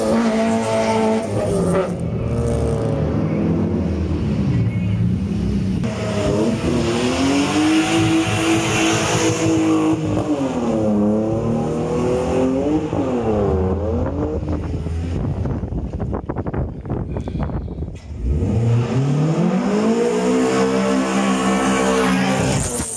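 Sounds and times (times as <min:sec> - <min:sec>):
car engine revving: 0:00.0 - 0:15.7, 0:18.0 - 0:22.9.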